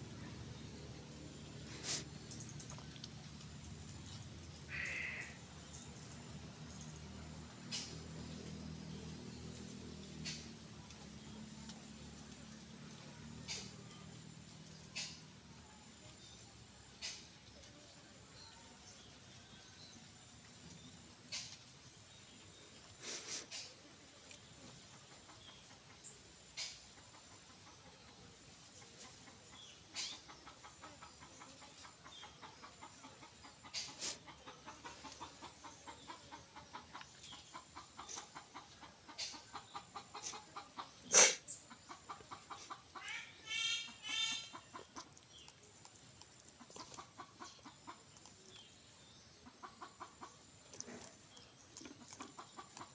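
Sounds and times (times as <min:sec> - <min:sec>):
chicken clucking: 0:24.4 - 0:52.9
chicken squawking: 0:42.9 - 0:44.6.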